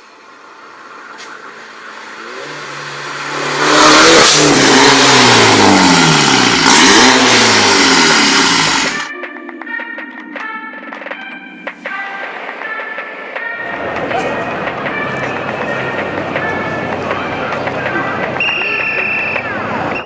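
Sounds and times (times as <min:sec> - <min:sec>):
car engine revving: 0:00.0 - 0:09.1, 0:13.6 - 0:20.0.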